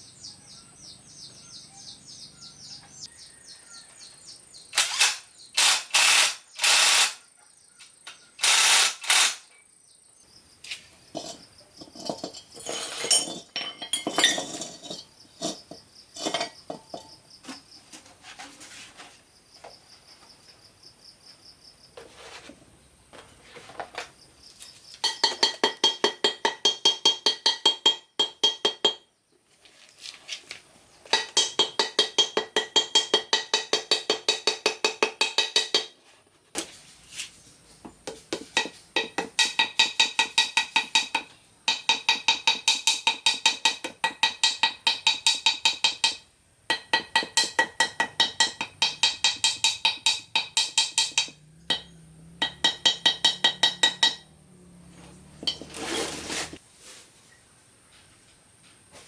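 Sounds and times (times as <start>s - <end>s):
rapid hammer blows on metal: 38.6s - 54.2s.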